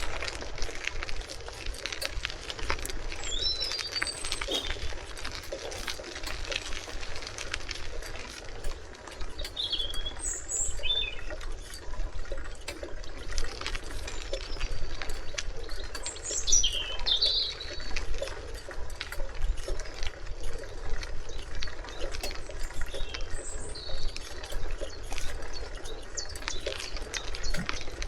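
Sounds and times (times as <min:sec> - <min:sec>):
small scattered clicks: 0:00.0 - 0:28.0
birds chirping: 0:02.1 - 0:07.4, 0:08.7 - 0:11.8, 0:13.6 - 0:18.4.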